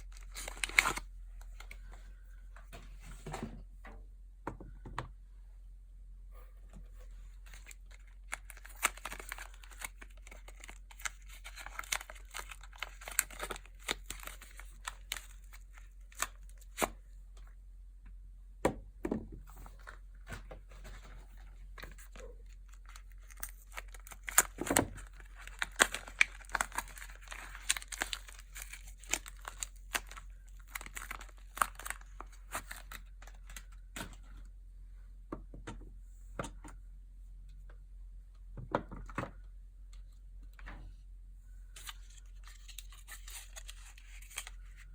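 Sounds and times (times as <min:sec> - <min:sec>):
packaging wrapping crinkling: 0:00.0 - 0:01.1, 0:07.4 - 0:16.8, 0:21.3 - 0:33.8, 0:41.8 - 0:44.9.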